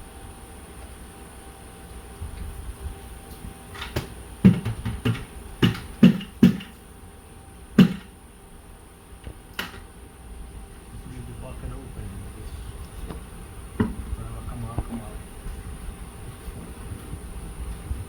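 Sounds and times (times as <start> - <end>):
faint steady hum: 0.0 - 18.0
sharp knocks: 3.8 - 6.8, 7.8 - 8.2.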